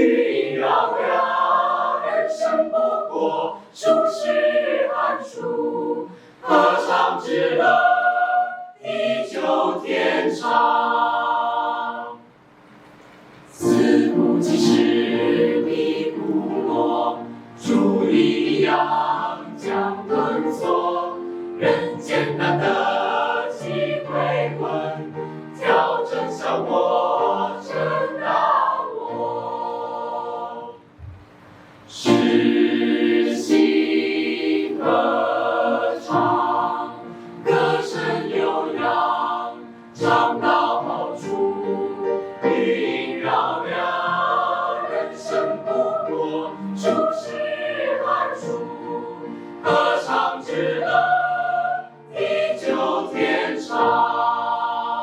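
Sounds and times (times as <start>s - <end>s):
choir singing: 0.0s - 12.3s, 13.5s - 31.0s, 31.9s - 55.0s.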